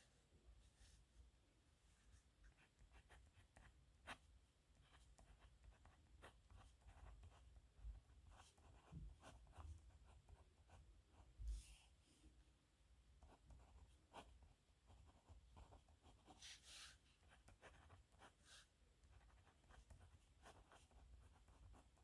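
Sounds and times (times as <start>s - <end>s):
pen scratching on paper: 4.9s - 7.6s, 8.2s - 10.8s, 13.3s - 18.4s, 19.0s - 22.0s.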